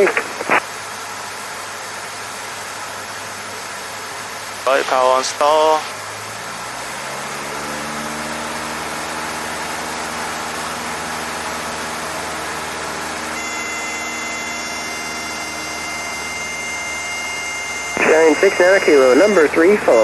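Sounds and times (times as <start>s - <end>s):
aircraft engine running at high power: 0.6s - 20.0s
stall warning horn: 13.2s - 20.0s.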